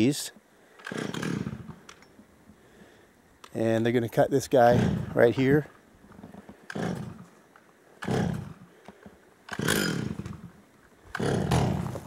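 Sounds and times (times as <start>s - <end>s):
chainsaw engine bursts: 0.7s - 2.1s, 4.6s - 5.6s, 6.2s - 7.3s, 8.0s - 12.0s.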